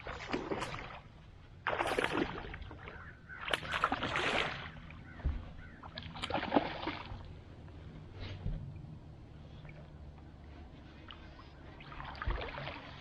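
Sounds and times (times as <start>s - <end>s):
fish splashing in water: 0.0s - 7.3s, 11.1s - 13.0s.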